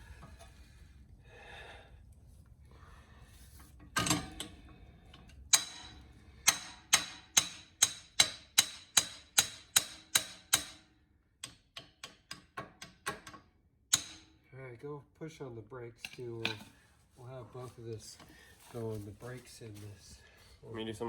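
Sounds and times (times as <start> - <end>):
metal-on-metal clicks with ring: 4.0 - 10.8.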